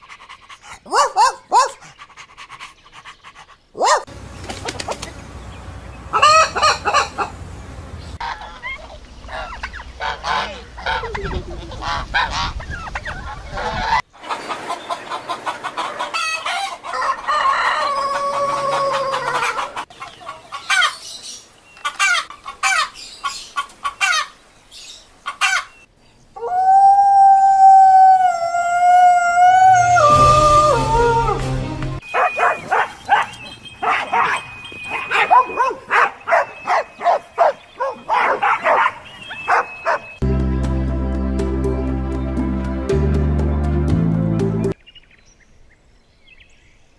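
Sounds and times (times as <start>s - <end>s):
chickens clucking: 4.3s - 7.5s, 8.1s - 21.0s
rooster crowing: 16.5s - 19.8s.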